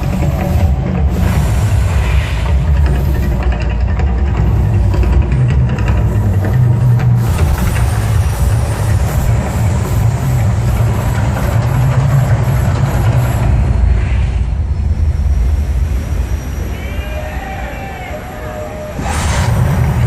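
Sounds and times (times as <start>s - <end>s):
loud low rumble: 0.0s - 17.0s, 18.9s - 20.0s
voices: 16.5s - 19.1s.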